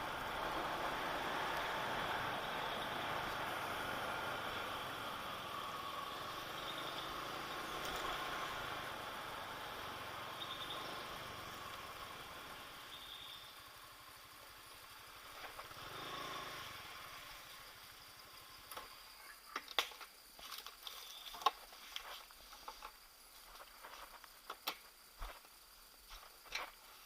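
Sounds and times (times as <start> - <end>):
vehicle engine passing: 0.0 - 12.8, 15.6 - 17.5.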